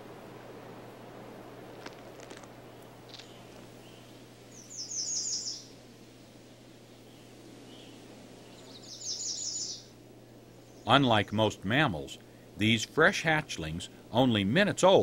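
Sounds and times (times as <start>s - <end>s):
faint steady hum: 0.0s - 15.0s
songbird trill: 2.6s - 5.8s, 6.4s - 11.4s.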